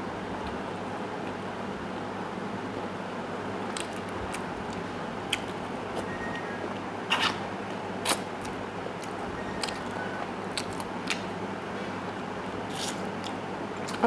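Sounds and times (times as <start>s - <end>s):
chewing with wet smacks: 3.7s - 6.1s.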